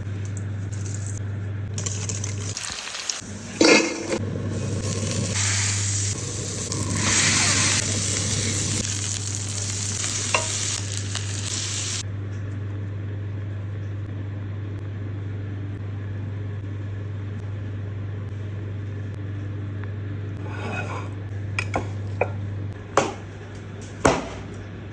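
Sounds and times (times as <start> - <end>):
constant low hum: 0.0 - 24.9
burger patties sizzling on griddle: 1.8 - 12.0.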